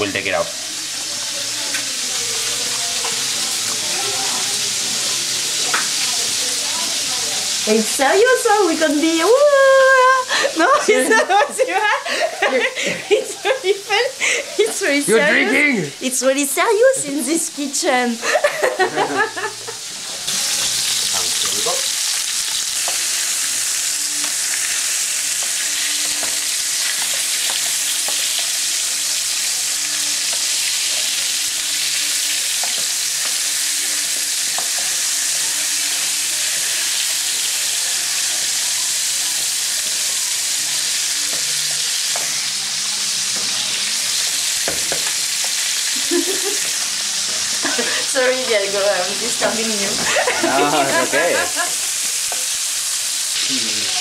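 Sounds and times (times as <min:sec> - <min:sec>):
chicken sizzling in oil: 0:00.0 - 0:54.0
people laughing: 0:09.9 - 0:15.9, 0:18.2 - 0:19.9, 0:45.9 - 0:46.8, 0:47.4 - 0:48.2, 0:49.9 - 0:51.9.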